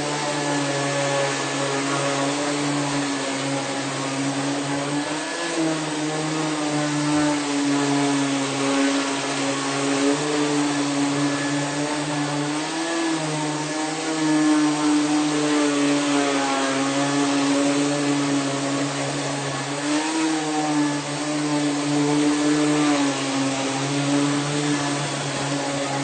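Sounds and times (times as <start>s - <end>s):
vacuum cleaner motor running: 0.0s - 26.0s.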